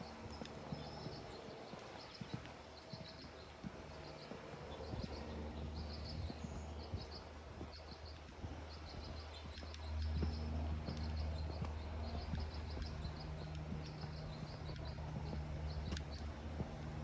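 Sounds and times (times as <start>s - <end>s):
low steady hum: 0.0s - 17.0s
small songbird chirping: 0.0s - 17.0s
soft footsteps: 0.0s - 17.0s.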